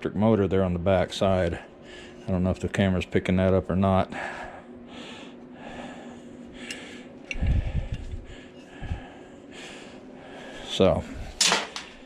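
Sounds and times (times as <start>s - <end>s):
faint steady hum: 0.0s - 12.0s
man breathing: 1.6s - 2.3s, 4.1s - 11.4s.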